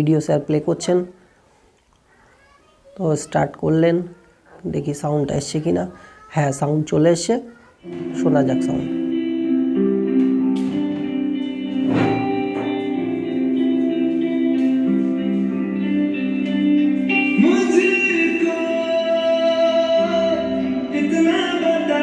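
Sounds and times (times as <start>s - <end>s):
song with guitar and singing: 7.8s - 22.0s.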